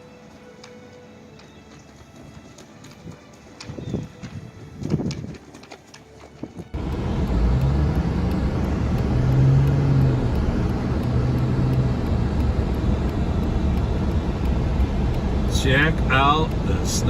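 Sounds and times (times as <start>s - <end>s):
vehicle engine and road rumble: 0.0s - 17.0s
low hum: 6.8s - 17.0s.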